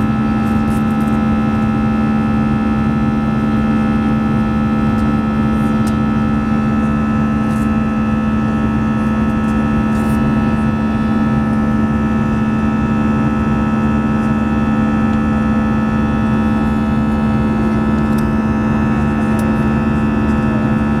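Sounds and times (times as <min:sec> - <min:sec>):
aircraft engines droning: 0:04.6 - 0:21.0.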